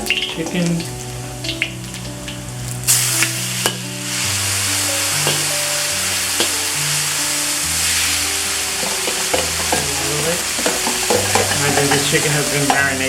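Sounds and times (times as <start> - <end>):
chicken sizzling in hot oil: 0.0 - 13.0
utensil clicking against pan: 10.6 - 12.9.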